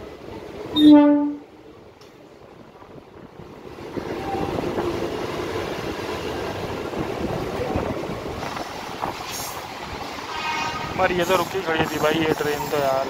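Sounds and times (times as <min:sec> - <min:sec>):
train wheels rumbling and rattling: 0:00.0 - 0:13.0.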